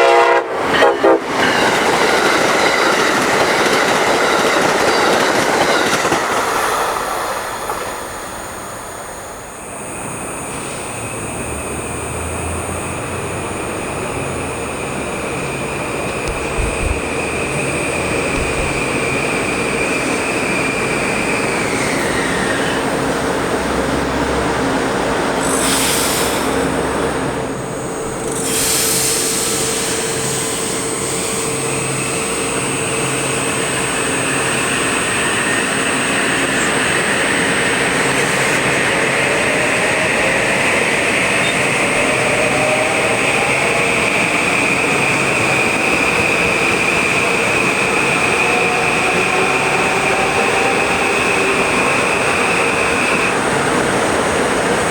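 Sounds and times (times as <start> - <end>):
train motor whine: 0.0 - 54.9
train wheels rumbling on rail: 0.0 - 54.9.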